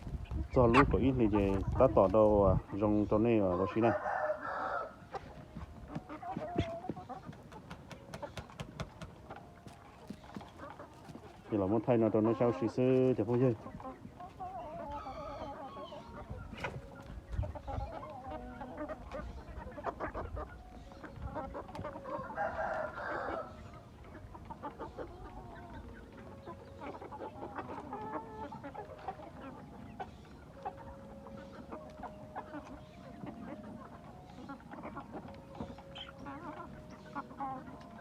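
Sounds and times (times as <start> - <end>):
chickens clucking: 0.0 - 38.0
rooster crowing: 3.6 - 5.0, 22.2 - 23.5.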